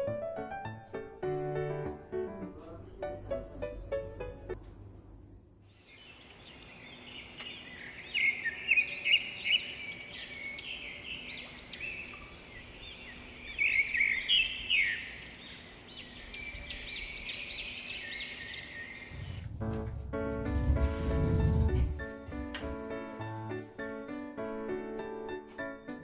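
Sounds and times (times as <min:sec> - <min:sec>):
small birds chirping: 0:05.6 - 0:19.6.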